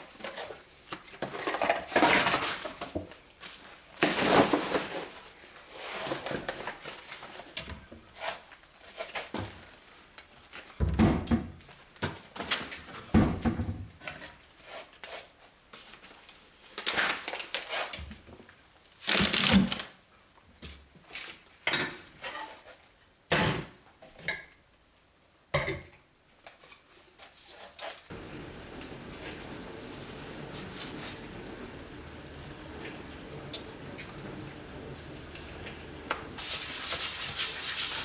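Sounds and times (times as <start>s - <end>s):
rustling rushes: 28.1s - 38.0s.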